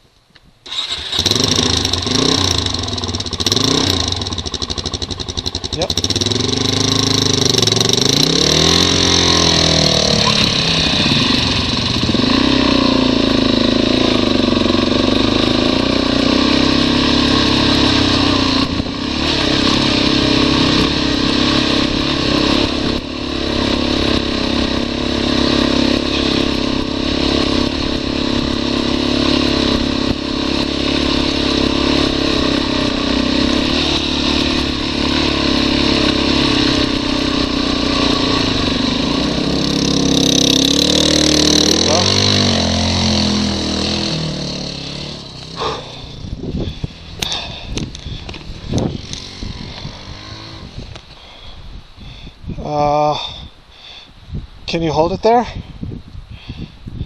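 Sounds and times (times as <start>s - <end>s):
motorcycle engine climbing: 0.1s - 53.6s.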